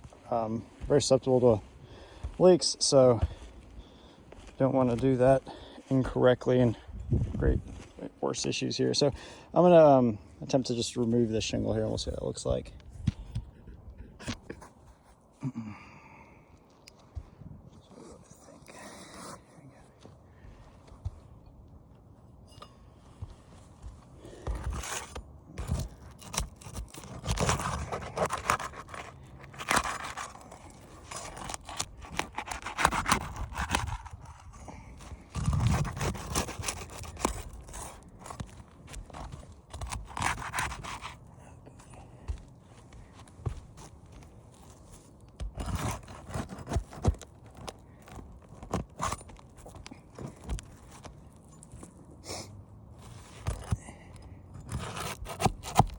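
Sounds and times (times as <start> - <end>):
roof shingle scraping and tearing: 24.2 - 52.0, 53.0 - 55.9.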